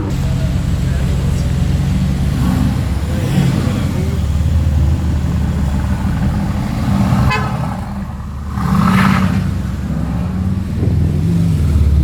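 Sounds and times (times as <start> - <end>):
car engine rumbling: 0.0 - 12.0
car horn toot: 6.9 - 10.1.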